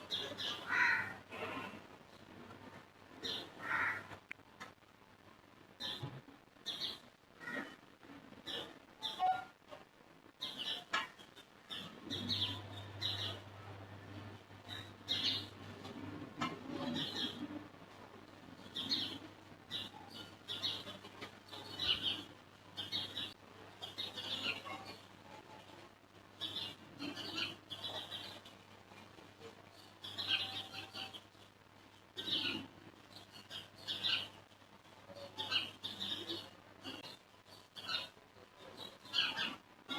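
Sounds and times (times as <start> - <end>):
birds chirping: 10.4 - 17.6, 18.5 - 25.7, 26.4 - 28.6, 29.4 - 31.4, 32.2 - 34.4, 35.1 - 39.9.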